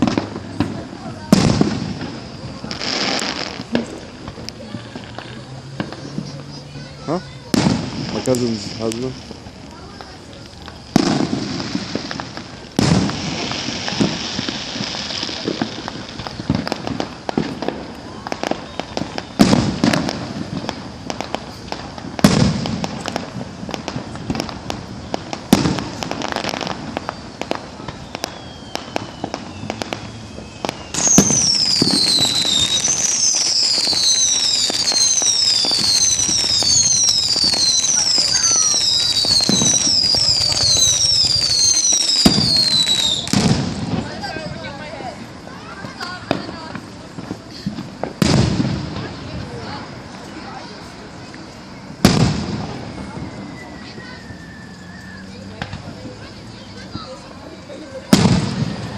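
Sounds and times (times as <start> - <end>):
firework booms: 0.0 - 58.9
fireworks crackling: 0.0 - 58.9
high falling whistle: 27.8 - 43.4, 52.6 - 55.6.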